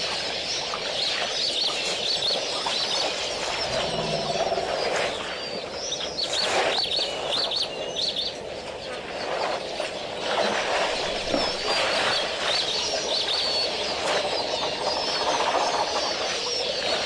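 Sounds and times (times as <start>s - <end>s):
small birds chirping: 0.4s - 8.6s.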